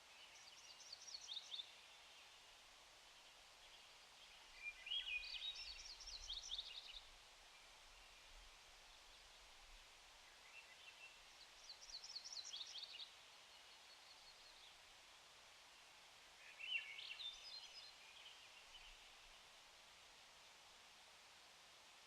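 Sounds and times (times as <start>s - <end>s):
faint outdoor hiss: 0.0s - 22.0s.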